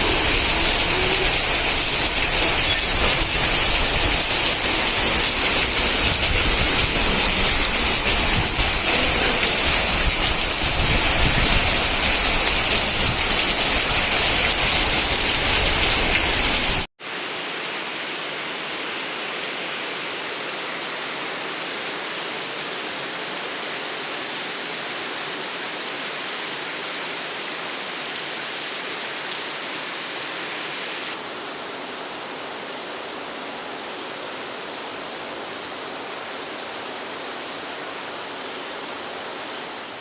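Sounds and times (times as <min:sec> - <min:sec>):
heavy rain falling: 0:00.0 - 0:16.9.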